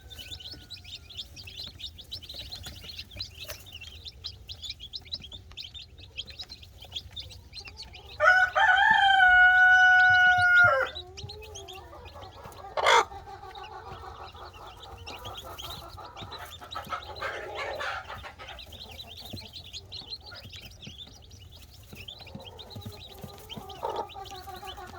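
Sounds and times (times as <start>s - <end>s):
rooster crowing: 0.0s - 1.3s, 8.2s - 11.0s
chicks peeping: 0.0s - 24.9s
hens clucking: 0.0s - 24.9s.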